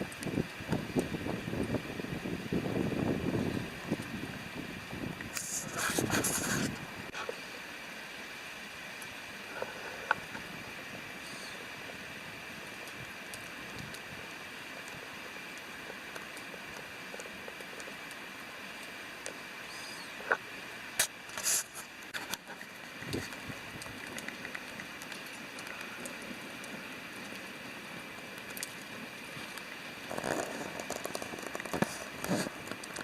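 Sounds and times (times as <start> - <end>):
campfire crackling: 0.0 - 33.0
river water rushing: 0.0 - 33.0
burning wood popping: 5.2 - 7.3, 18.8 - 27.5, 28.2 - 33.0.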